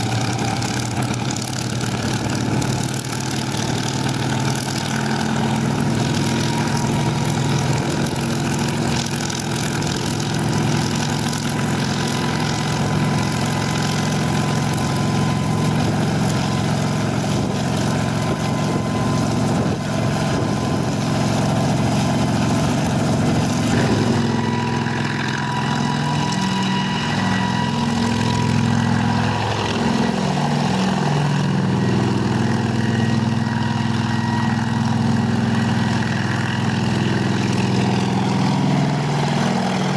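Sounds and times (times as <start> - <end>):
helicopter engines running: 0.0 - 39.9.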